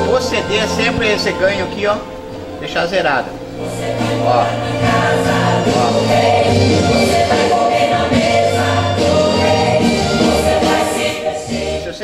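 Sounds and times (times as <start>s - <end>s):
recorded gospel choir singing: 0.0s - 12.0s
sustained bass notes: 0.0s - 12.0s.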